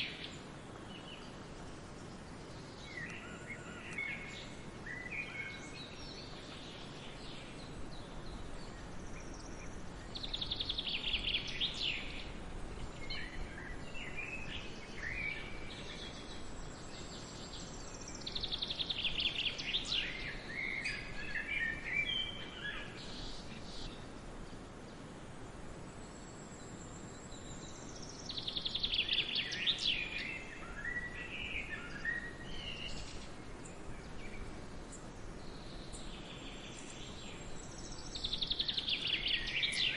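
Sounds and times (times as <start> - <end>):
songbird trilling song: 0.0 - 24.2, 26.0 - 39.9
faint bird chirps: 0.0 - 24.5, 25.9 - 39.9
background hiss: 0.0 - 39.9.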